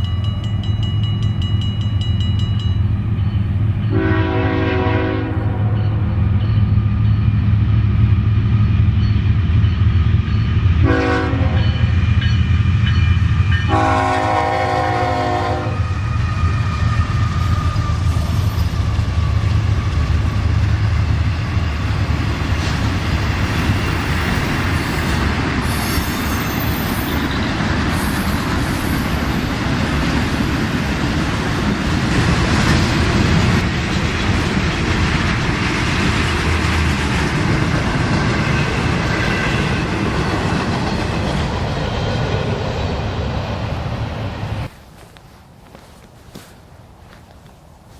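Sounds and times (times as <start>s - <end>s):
locomotive engine drone: 0.0s - 47.9s
rumble of train wheels: 0.0s - 47.9s
locomotive horn blasts: 3.9s - 5.8s, 10.8s - 11.8s, 13.7s - 15.8s.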